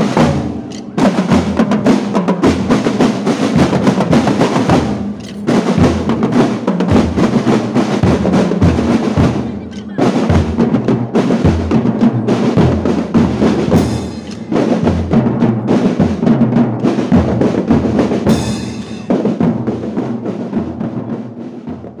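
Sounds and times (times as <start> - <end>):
marching drum band: 0.0 - 22.0.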